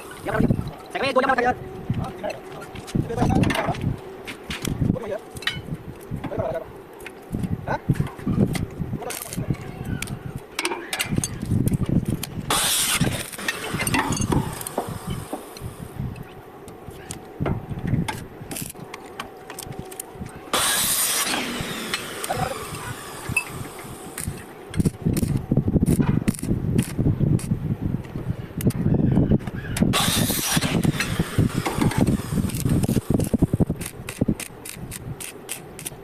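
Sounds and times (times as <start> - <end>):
hissing bursts: 0.0 - 0.7, 12.5 - 16.1, 20.5 - 25.4, 29.9 - 35.9
iron pieces clanking: 12.5 - 15.7, 19.9 - 25.0, 29.9 - 34.0.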